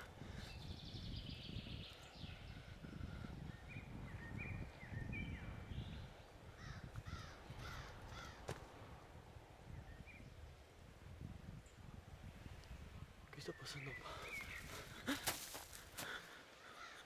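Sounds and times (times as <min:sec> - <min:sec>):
birds chirping: 0:00.0 - 0:10.9, 0:11.5 - 0:17.0.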